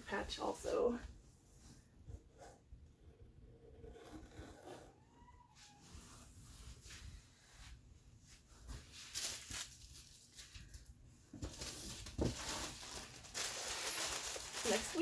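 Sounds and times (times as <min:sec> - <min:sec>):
clothes and packaging rustling: 0:05.6 - 0:15.0.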